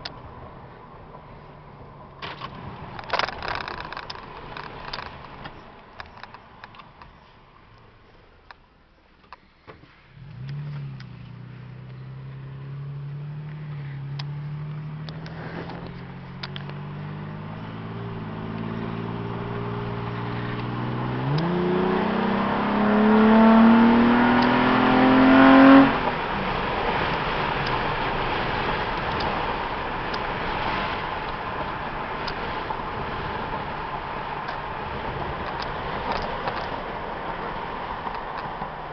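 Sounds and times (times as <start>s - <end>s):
road and wind noise: 0.0s - 38.9s
pickup truck engine accelerating: 10.2s - 38.9s.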